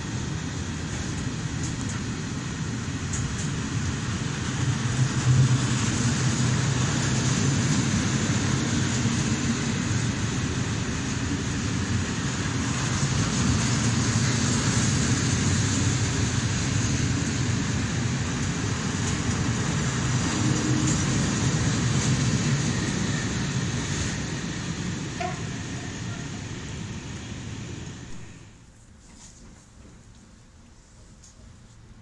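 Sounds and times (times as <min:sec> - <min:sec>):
freight train wheels rumbling: 0:00.0 - 0:28.6.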